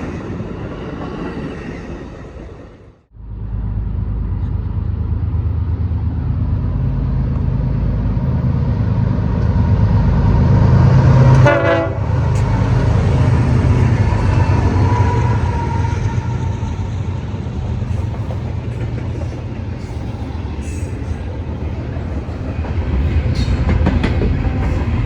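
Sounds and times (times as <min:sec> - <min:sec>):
diesel train rumbling: 0:00.0 - 0:25.0
train horn toot: 0:11.2 - 0:12.6.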